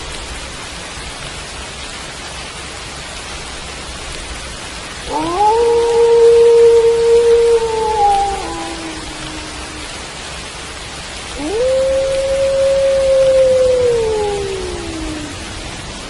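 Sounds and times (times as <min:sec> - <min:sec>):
steady rain: 0:00.0 - 0:16.0
wolf howling: 0:05.1 - 0:10.2, 0:11.3 - 0:16.0.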